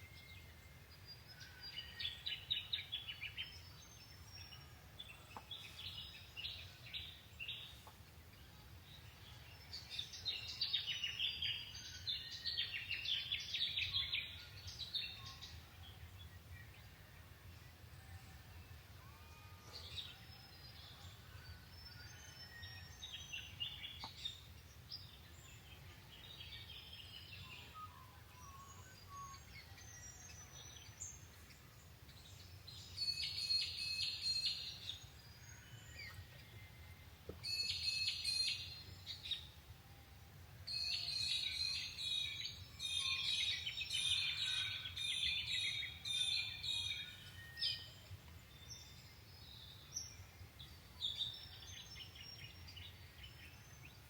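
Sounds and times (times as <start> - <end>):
birds chirping and trilling: 0.0 - 39.7, 40.7 - 54.0.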